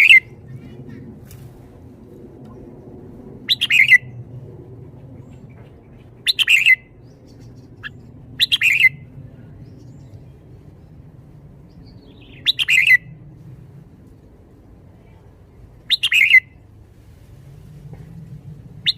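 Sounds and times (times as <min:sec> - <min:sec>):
bird chirping phrases: 0:00.0 - 0:01.1, 0:03.5 - 0:04.1, 0:05.2 - 0:13.1, 0:15.1 - 0:16.6.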